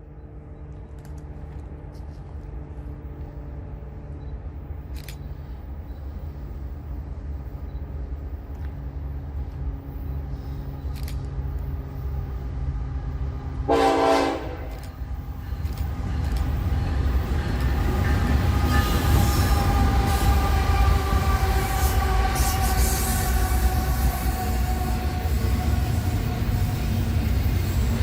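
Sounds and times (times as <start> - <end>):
locomotive engine rumble: 0.0 - 28.0
train horn blast: 13.7 - 14.9, 18.6 - 27.0.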